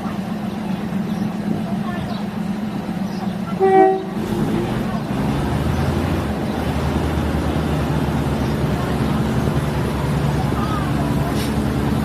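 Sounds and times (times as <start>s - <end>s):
diesel train engine rumble: 0.0s - 12.0s
train horn toot: 3.6s - 4.2s.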